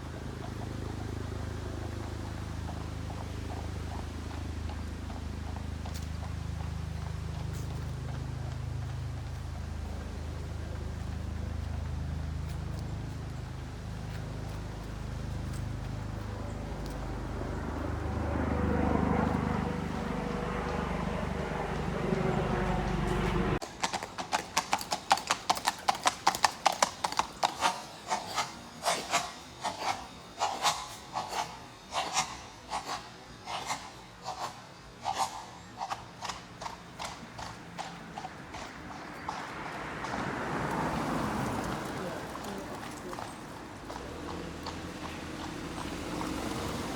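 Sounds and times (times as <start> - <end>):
horse hooves on pavement: 0.0 - 46.9
low rumble: 1.2 - 23.6.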